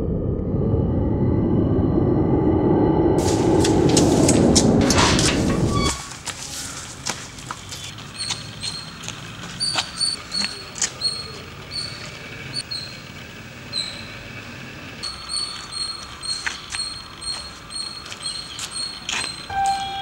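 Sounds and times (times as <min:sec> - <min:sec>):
small birds chirping: 0:07.7 - 0:13.1, 0:13.7 - 0:14.3, 0:15.0 - 0:20.0.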